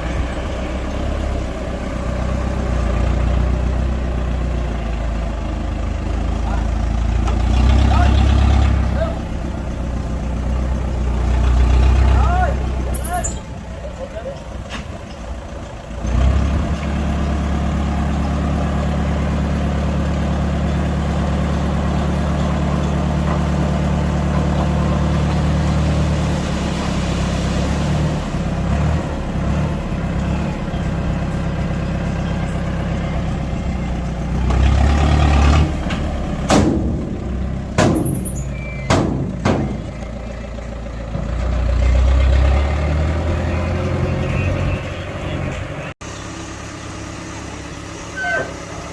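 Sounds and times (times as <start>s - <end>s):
heavy diesel engine running: 0.0s - 48.9s
sharp metallic knocks: 36.4s - 39.9s.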